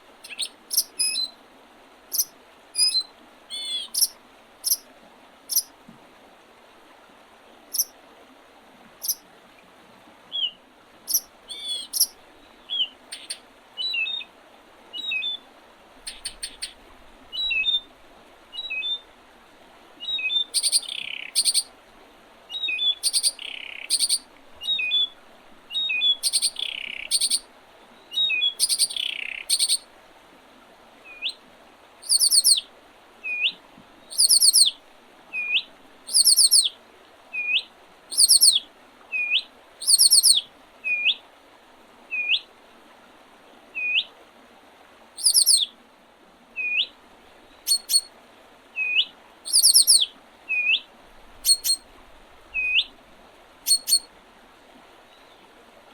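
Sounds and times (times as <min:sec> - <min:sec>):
songbird falling-note songs: 0:02.2 - 0:04.1, 0:32.0 - 0:32.6, 0:33.3 - 0:34.7, 0:35.4 - 0:36.7, 0:37.4 - 0:38.6, 0:39.2 - 0:41.2, 0:45.2 - 0:45.7, 0:46.6 - 0:46.9, 0:48.8 - 0:50.8, 0:51.4 - 0:51.8, 0:52.6 - 0:52.9, 0:53.7 - 0:54.1
short hooked bird whistles: 0:32.0 - 0:32.6, 0:34.1 - 0:34.7, 0:35.4 - 0:36.7, 0:37.4 - 0:38.6, 0:39.2 - 0:40.4, 0:45.2 - 0:45.6, 0:47.7 - 0:48.1, 0:48.8 - 0:50.0, 0:51.4 - 0:51.8, 0:53.7 - 0:54.1.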